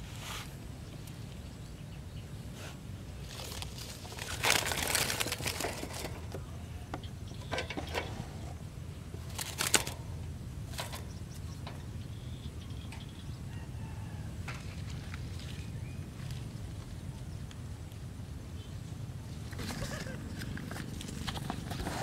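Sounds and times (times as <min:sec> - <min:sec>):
bird flapping and scuffling: 0:03.3 - 0:06.5
wire birdcage clicks and knocks: 0:09.2 - 0:10.1.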